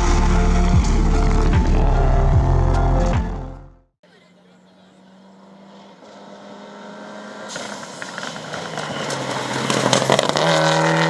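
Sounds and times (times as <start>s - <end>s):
rally car engine approaching: 0.0s - 3.5s, 4.1s - 11.0s
tyre and gravel noise: 7.5s - 11.0s.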